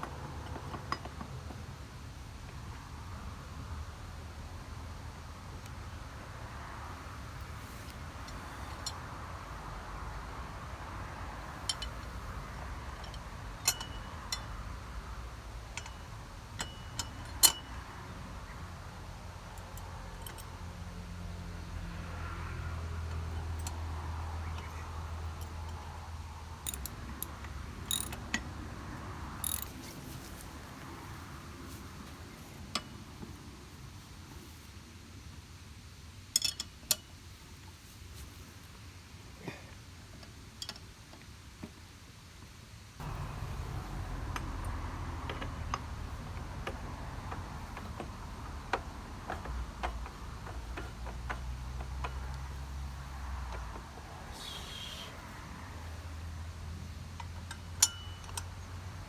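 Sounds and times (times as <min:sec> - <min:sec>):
hand tools clinking on metal: 0:11.6 - 0:14.7, 0:15.7 - 0:17.8, 0:26.6 - 0:28.4, 0:29.4 - 0:30.0, 0:43.0 - 0:54.9, 0:57.2 - 0:58.7.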